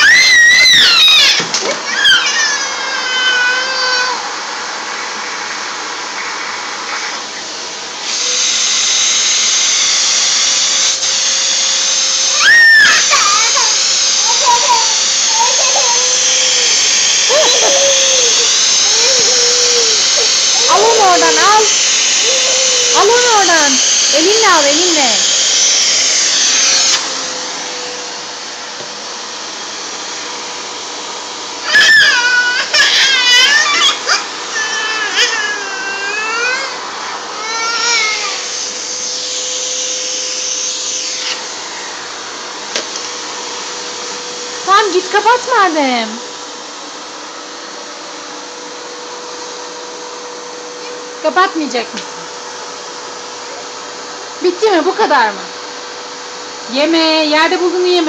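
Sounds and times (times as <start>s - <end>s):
baby crying: 0.0s - 4.4s, 12.3s - 23.6s, 31.6s - 38.6s
vacuum cleaner running: 0.0s - 58.0s.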